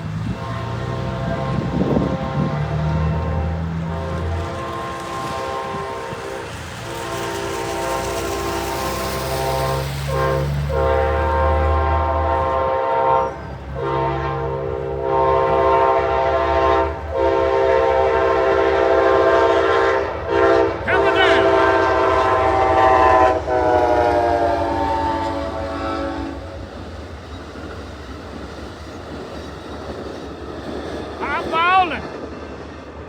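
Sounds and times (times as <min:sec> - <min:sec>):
train rumble: 0:00.0 - 0:33.0
locomotive horn blasts: 0:00.2 - 0:26.6.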